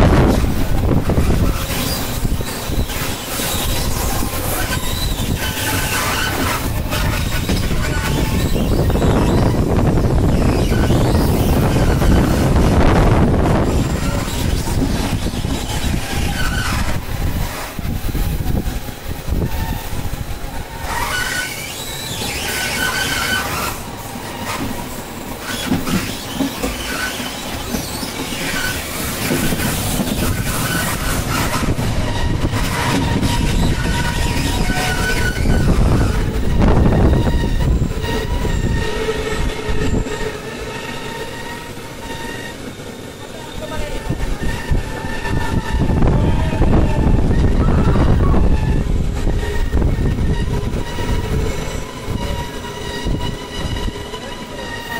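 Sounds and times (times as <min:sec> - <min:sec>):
train wheels rumbling on rails: 0:00.0 - 0:54.9
high-pitched wheel squeals: 0:00.2 - 0:54.9.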